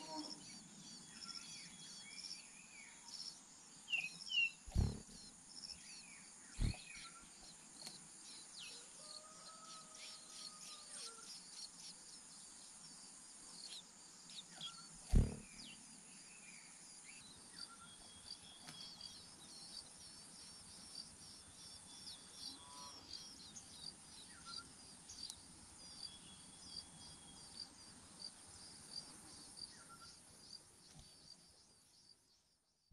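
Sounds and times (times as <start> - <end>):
short bird calls: 4.5 - 5.3, 6.6 - 7.2, 14.6 - 15.8
dull thumps: 4.7 - 5.2, 15.1 - 15.5
quick repeated chirps: 4.7 - 5.3, 6.6 - 7.1, 15.1 - 15.6
high insect buzz: 4.7 - 6.0, 6.6 - 7.9, 14.6 - 16.6.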